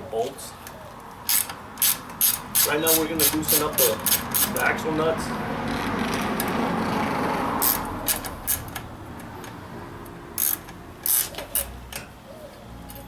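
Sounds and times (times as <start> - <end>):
wrench clicking on axle nuts: 1.2 - 4.7, 7.6 - 9.6, 10.4 - 12.1.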